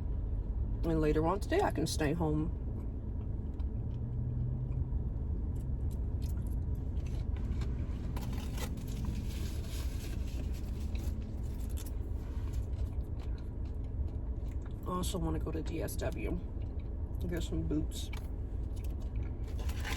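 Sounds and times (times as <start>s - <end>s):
low rumble inside car: 0.0s - 19.9s
food packaging rustling: 7.4s - 12.6s, 18.8s - 19.9s.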